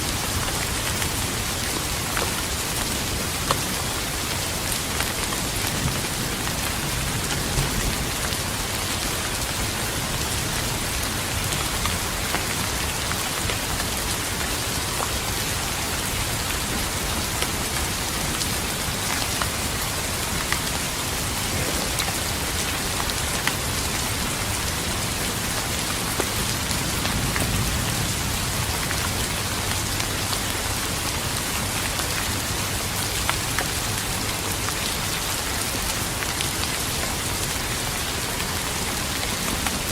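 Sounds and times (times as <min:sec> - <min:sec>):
steady rain falling: 0:00.0 - 0:39.9
low rumble of thunder: 0:05.8 - 0:08.6, 0:26.4 - 0:30.2.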